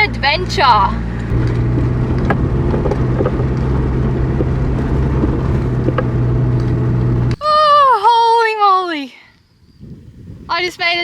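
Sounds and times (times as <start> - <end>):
engine and road drone: 0.0 - 7.4
light knocks and rattles: 1.2 - 7.3.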